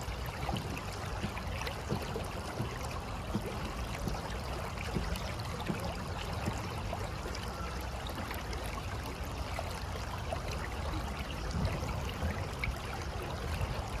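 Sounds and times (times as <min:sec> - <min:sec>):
river water flowing: 0:00.0 - 0:14.0
small splashes and trickles: 0:00.0 - 0:14.0.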